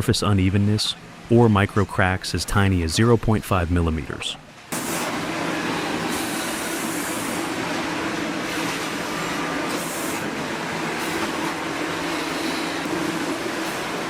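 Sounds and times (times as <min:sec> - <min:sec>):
steady machine hum: 0:00.0 - 0:14.0
sawmill machinery rumbling hiss: 0:04.8 - 0:07.6.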